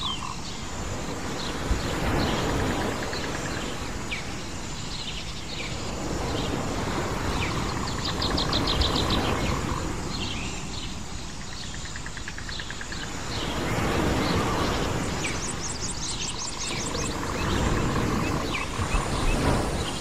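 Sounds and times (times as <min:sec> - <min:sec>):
birds trilling: 0:05.2 - 0:20.0.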